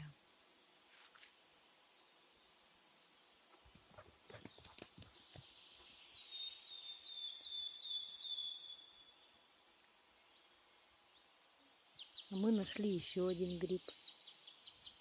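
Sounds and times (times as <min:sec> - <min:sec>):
rustles and crackles: 0:00.8 - 0:01.5, 0:03.5 - 0:05.6.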